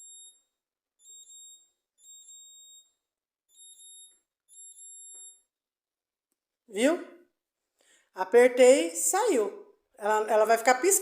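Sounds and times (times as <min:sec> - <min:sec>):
refrigerator alarm beeping: 0:00.0 - 0:05.6.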